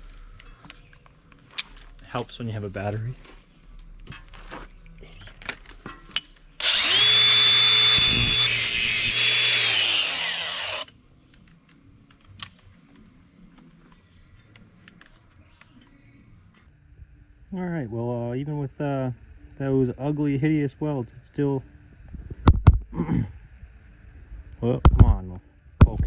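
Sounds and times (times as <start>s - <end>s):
power tool whining: 6.6s - 10.9s.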